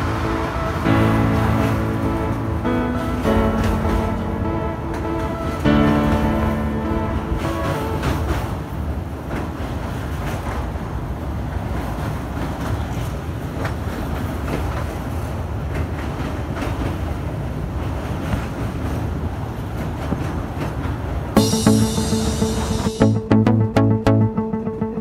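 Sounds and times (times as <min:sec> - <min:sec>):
train wheels rumbling on rail: 0:07.4 - 0:21.4.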